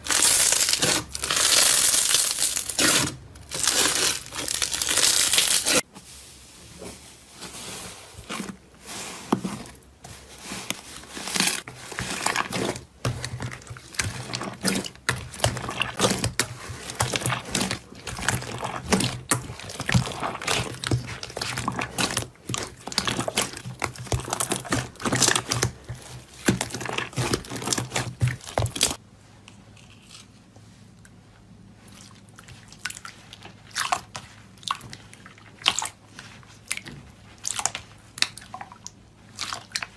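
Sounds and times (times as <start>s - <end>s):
crunchy material crackling: 0.0s - 29.0s.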